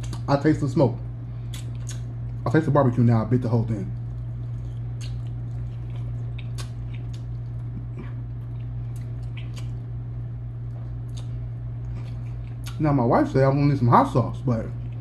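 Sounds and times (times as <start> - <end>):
person chewing with mouth smacks: 0.0 - 0.3, 1.4 - 2.4, 3.9 - 9.9, 10.7 - 12.8
steady low hum: 0.0 - 15.0.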